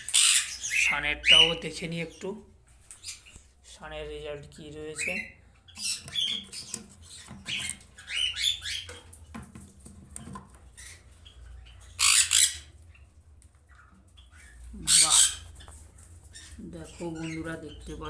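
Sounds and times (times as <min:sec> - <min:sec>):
loud bird screeches: 0:00.0 - 0:01.5, 0:05.8 - 0:08.9, 0:11.8 - 0:12.7
conures squawking: 0:00.0 - 0:01.6, 0:04.9 - 0:09.1, 0:10.7 - 0:13.0, 0:13.7 - 0:18.0.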